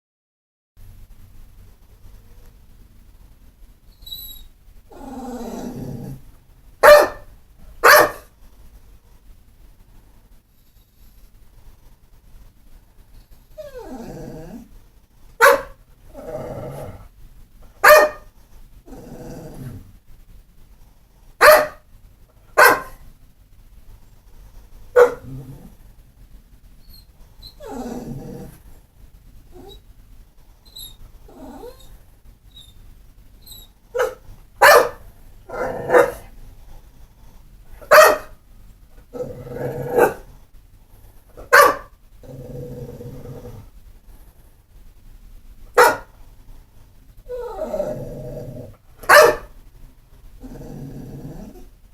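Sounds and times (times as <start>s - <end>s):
dog whining and grumbling: 3.9s - 6.3s, 13.5s - 14.8s, 15.5s - 17.1s, 18.8s - 19.9s, 25.0s - 25.8s, 26.8s - 28.8s, 29.5s - 29.9s, 30.6s - 32.8s, 33.4s - 36.3s, 47.2s - 49.4s, 50.4s - 51.8s
dog barking: 6.8s - 8.3s, 15.4s - 15.8s, 17.8s - 18.3s, 21.4s - 21.9s, 22.6s - 23.0s, 25.0s - 25.3s, 34.0s - 36.3s, 37.8s - 38.4s, 39.9s - 40.3s, 41.4s - 41.9s, 45.8s - 46.2s, 49.0s - 49.6s.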